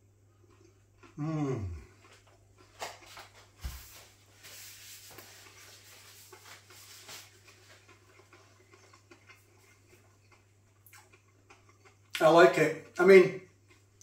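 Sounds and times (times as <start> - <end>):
chewing crunchy food: 0.4 - 3.5, 6.2 - 14.0.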